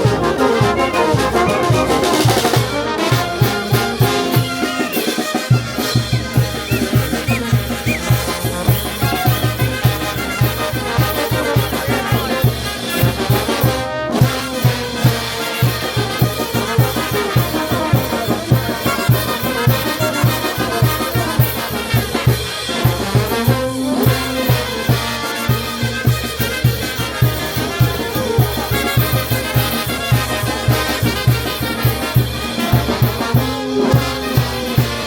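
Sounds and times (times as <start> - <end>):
brass band playing: 0.0 - 35.0.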